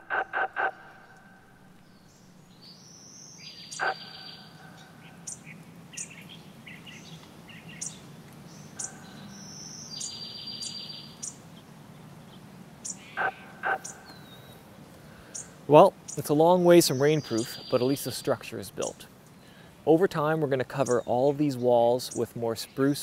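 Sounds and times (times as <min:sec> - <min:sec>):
buzzy bird trills: 0:00.0 - 0:02.6, 0:03.4 - 0:06.9
songbirds chirping: 0:00.0 - 0:23.0.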